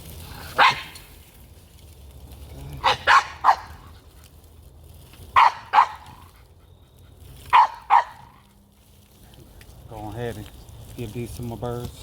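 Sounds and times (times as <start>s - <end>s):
dog barking: 0.5s - 1.0s, 2.8s - 3.8s, 5.3s - 6.2s, 7.5s - 8.4s.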